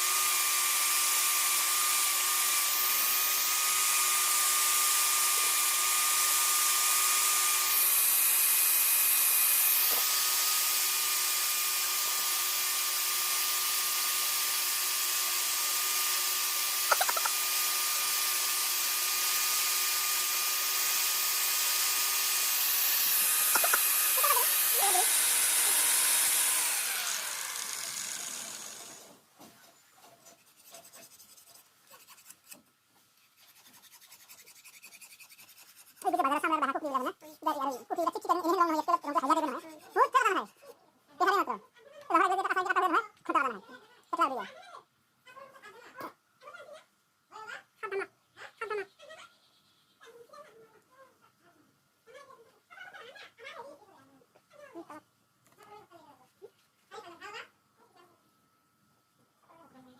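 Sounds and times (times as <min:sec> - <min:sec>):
electric power tool whining: 0:00.0 - 0:29.2.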